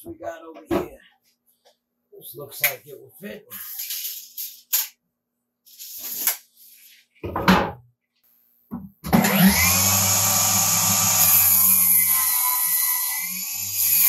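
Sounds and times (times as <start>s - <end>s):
power tool motor whining: 9.1s - 14.0s.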